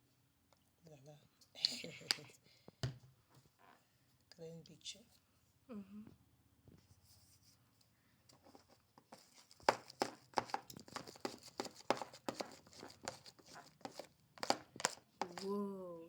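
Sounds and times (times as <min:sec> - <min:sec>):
slime squelching: 0:09.1 - 0:15.6.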